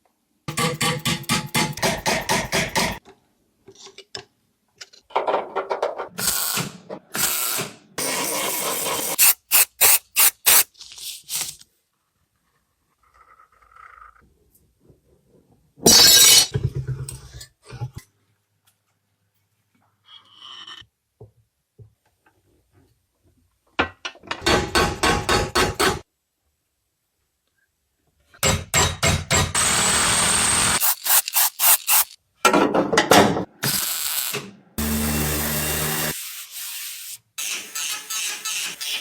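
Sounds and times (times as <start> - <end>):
power tool whining: 29.6 - 32.2, 34.8 - 36.2.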